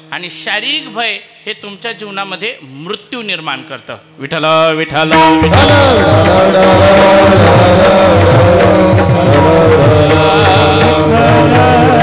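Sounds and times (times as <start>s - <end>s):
voices singing devotional refrain: 4.4s - 12.0s
hand drum rhythm: 5.1s - 12.0s.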